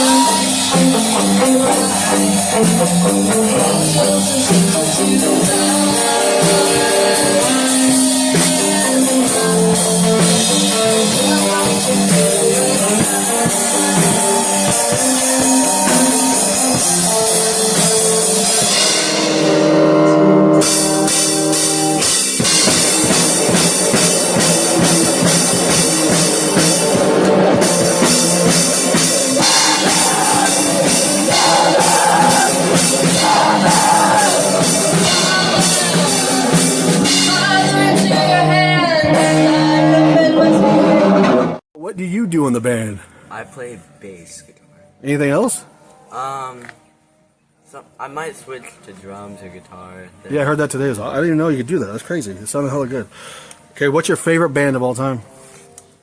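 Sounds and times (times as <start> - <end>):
rock band playing live: 0.0 - 41.6.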